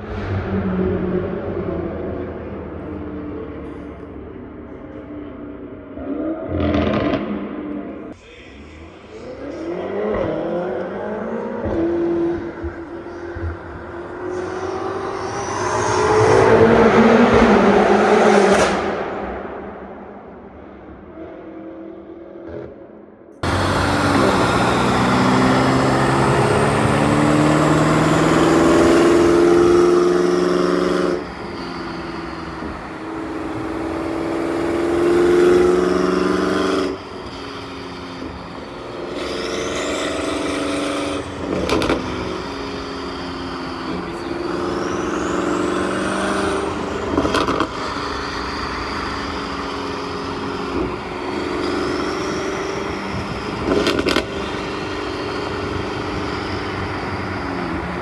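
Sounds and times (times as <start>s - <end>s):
car engine revving: 5.7s - 22.8s, 23.4s - 58.0s
exhaust cracks: 23.4s - 38.7s, 39.4s - 44.6s, 50.2s - 58.0s.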